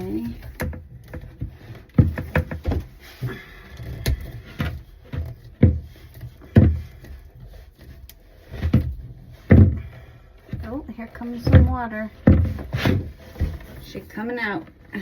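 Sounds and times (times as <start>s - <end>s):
hollow knocks on plastic pipe: 4.6s - 7.1s, 8.5s - 13.6s.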